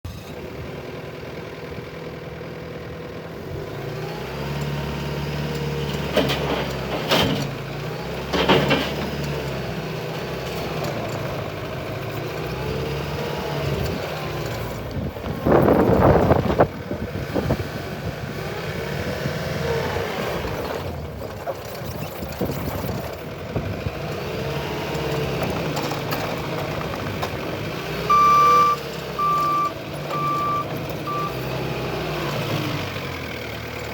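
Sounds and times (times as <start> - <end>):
diesel engine running: 0.0 - 33.9
reversing alarm beeping: 28.1 - 31.5.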